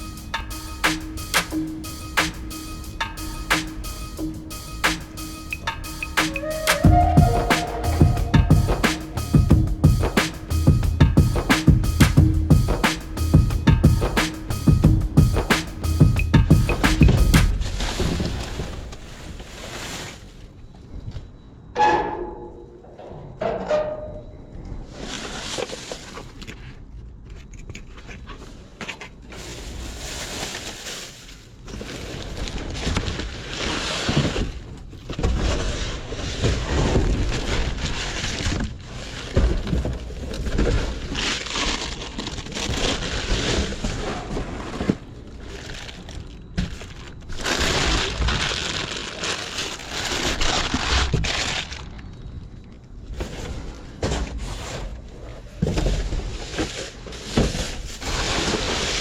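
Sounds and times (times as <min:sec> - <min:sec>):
sharp hits: 0:00.0 - 0:18.2
trash rummaged in dumpster: 0:29.3 - 0:59.0.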